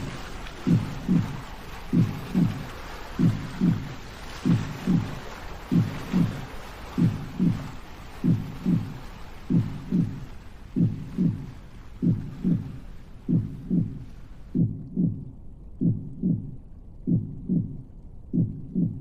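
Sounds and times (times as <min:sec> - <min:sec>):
soft hissing wash: 0:00.0 - 0:15.1
slow heartbeat: 0:00.0 - 0:19.0.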